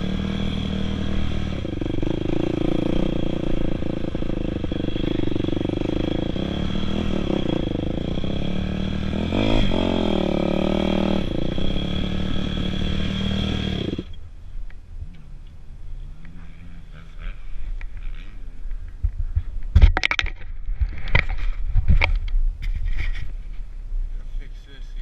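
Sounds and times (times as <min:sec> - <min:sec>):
dirt bike engine revving: 0:00.0 - 0:14.2.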